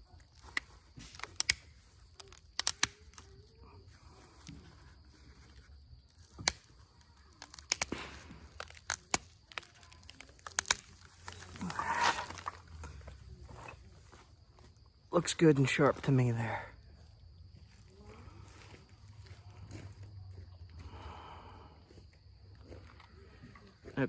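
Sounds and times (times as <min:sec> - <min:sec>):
stone flakes snapping off: 0:00.4 - 0:03.3, 0:06.1 - 0:12.9.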